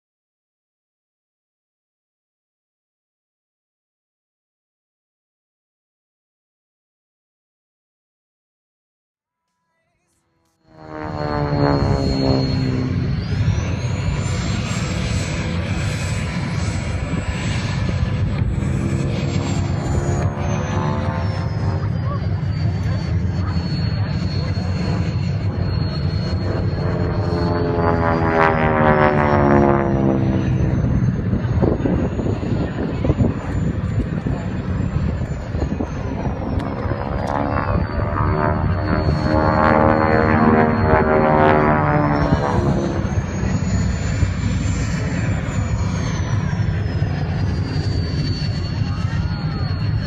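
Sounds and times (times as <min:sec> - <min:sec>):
faint high whine: 0:09.8 - 0:50.0
propeller airplane flying past: 0:10.6 - 0:50.0.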